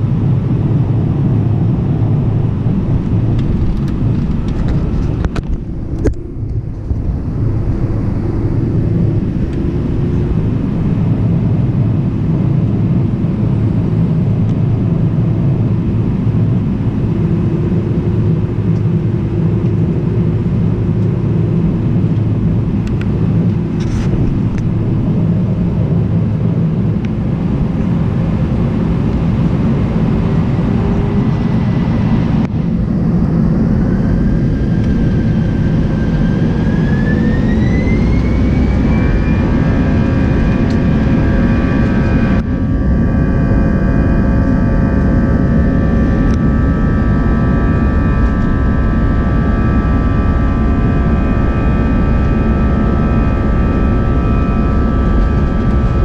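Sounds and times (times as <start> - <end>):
engine whine rising in pitch: 0.0 - 56.0
jet cabin drone: 0.0 - 56.0.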